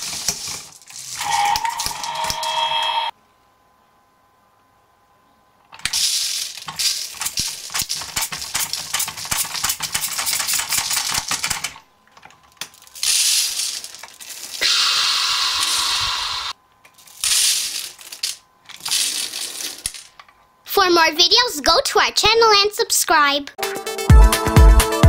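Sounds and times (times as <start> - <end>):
rice grains rattling on a table: 0.0 - 2.6, 5.8 - 11.6, 12.4 - 14.6, 17.0 - 20.2.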